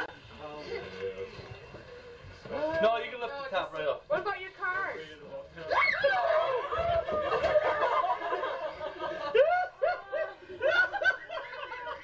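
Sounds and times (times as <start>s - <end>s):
people laughing: 5.9s - 12.0s.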